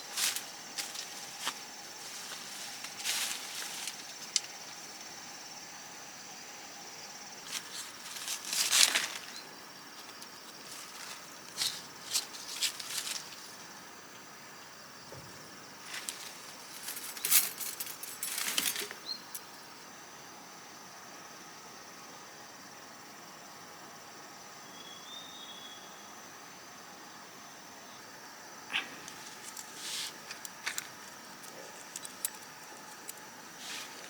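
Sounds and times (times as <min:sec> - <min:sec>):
rustling and light knocks: 0:15.0 - 0:19.0
high-pitched insect drone: 0:24.0 - 0:34.0.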